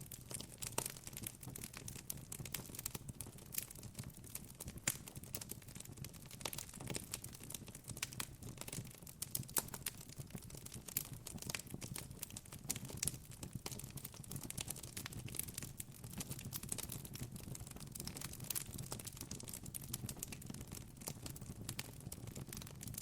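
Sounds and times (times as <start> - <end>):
campfire crackling: 17.9 - 19.2.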